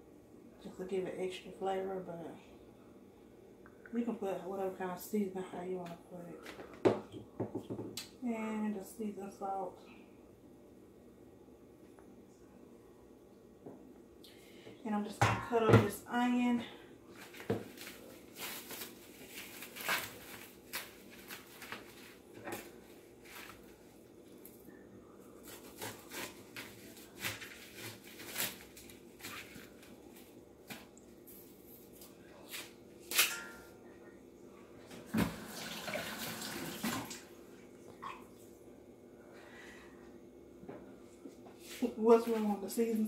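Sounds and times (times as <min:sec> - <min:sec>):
knife knocking on cutting board: 0:06.8 - 0:07.9
scraping and rustling: 0:17.2 - 0:23.8.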